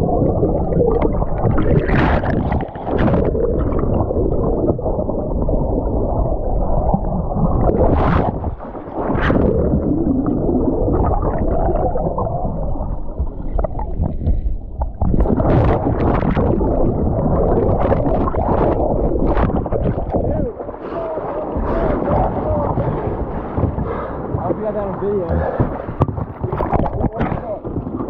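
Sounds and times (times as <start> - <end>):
sharp water splashes: 0.0 - 4.8
muffled rushing whitewater: 0.0 - 28.0.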